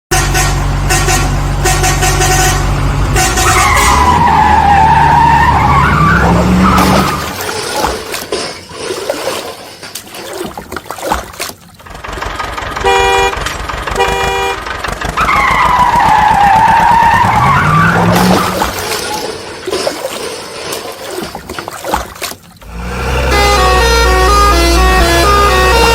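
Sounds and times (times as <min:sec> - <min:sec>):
short horn toots: 0:00.1 - 0:04.2, 0:14.0 - 0:14.6, 0:22.7 - 0:25.9
truck engine revving: 0:00.1 - 0:08.1, 0:11.8 - 0:20.8, 0:22.6 - 0:25.9.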